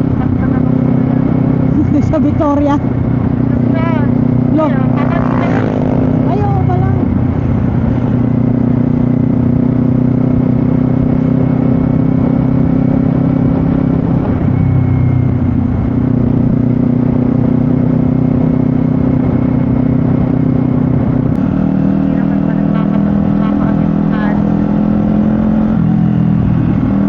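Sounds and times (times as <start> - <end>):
motorcycle engine running: 0.0 - 27.0
wind rushing over microphone: 0.0 - 27.0.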